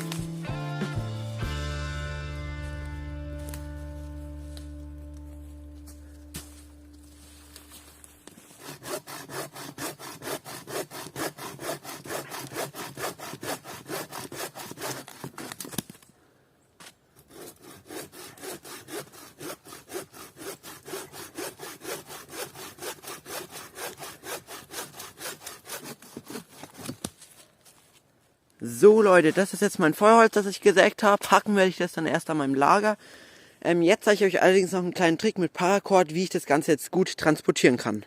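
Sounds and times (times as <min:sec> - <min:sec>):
hand saw cutting wood: 0:08.2 - 0:15.8, 0:17.2 - 0:27.1.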